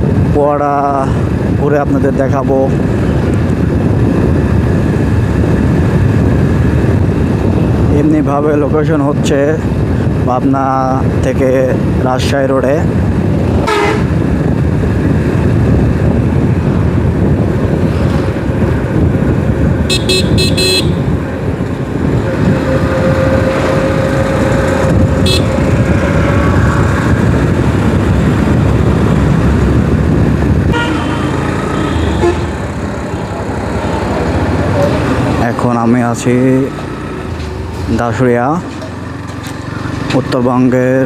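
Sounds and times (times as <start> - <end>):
wind and road noise: 0.0 - 41.0
vehicle horn beeping: 13.6 - 14.1, 19.9 - 21.1, 25.1 - 25.7, 30.7 - 32.6.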